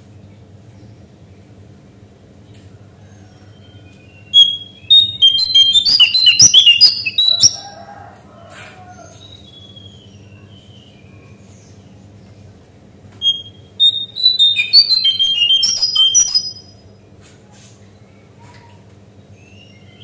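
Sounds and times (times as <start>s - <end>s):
songbird singing: 3.5s - 7.8s, 13.2s - 16.7s.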